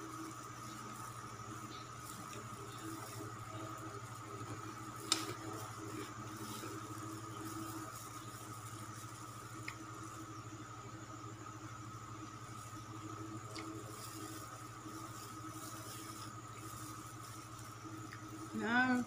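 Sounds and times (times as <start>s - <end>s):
steady low hum: 0.0s - 19.0s
person chewing: 13.4s - 14.3s.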